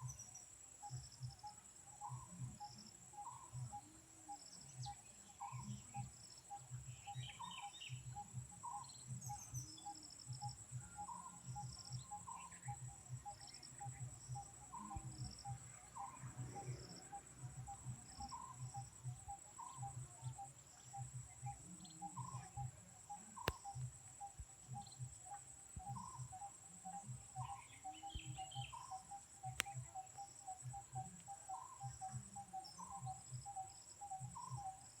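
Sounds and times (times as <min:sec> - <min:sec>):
bird-like chirps: 0:00.0 - 0:35.0
insects trilling: 0:00.0 - 0:35.0
sharp clicks: 0:23.4 - 0:23.8.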